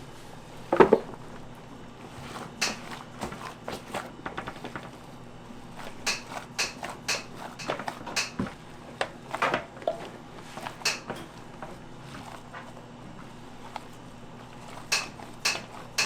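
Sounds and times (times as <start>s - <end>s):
utensils and containers clicking: 2.2s - 5.0s, 5.8s - 12.8s, 13.6s - 16.0s.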